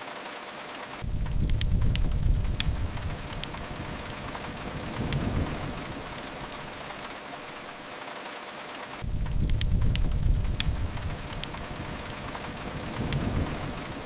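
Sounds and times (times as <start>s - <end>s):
steady rain: 0.0s - 14.0s
wood fire crackling: 0.0s - 14.0s
low rumble: 1.0s - 7.1s, 9.0s - 14.0s.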